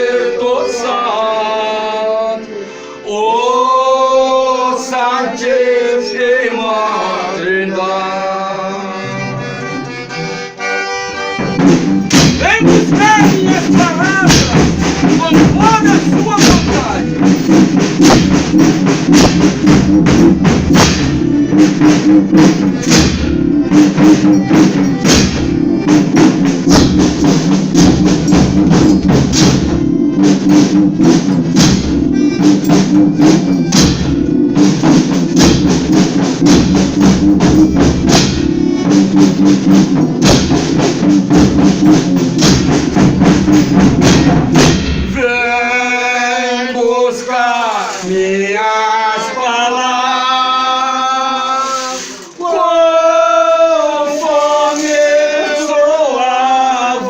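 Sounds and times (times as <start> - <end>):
held instrument notes: 7.0 - 50.2
drum and tambourine beat: 11.1 - 45.6.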